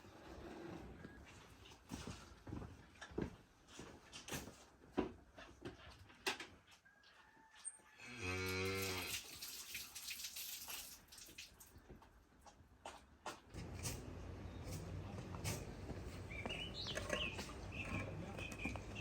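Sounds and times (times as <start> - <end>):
cow mooing: 8.0 - 9.1.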